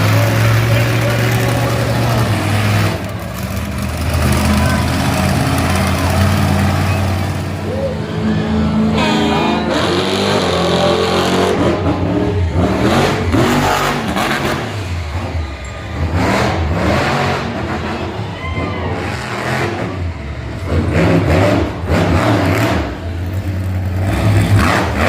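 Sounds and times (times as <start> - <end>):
monster truck engine revving: 0.0 - 25.0.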